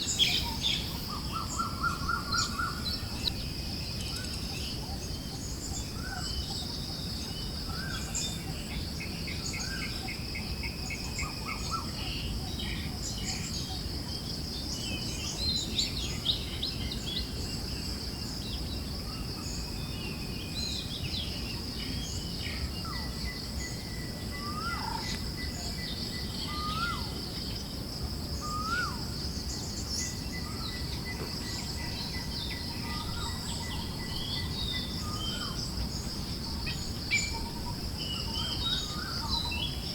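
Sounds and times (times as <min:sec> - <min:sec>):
forest birds chirping: 0:00.0 - 0:39.9
high insect trill: 0:00.0 - 0:39.9
rising whistled bird calls: 0:22.8 - 0:27.2.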